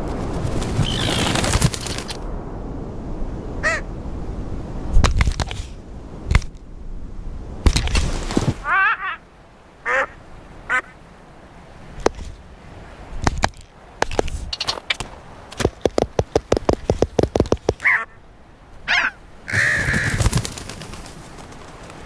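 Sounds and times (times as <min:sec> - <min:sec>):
wind rushing: 0:00.0 - 0:08.7
bird calls: 0:00.8 - 0:02.1, 0:15.9 - 0:18.2, 0:18.9 - 0:22.0
sharp knocks: 0:14.9 - 0:17.8.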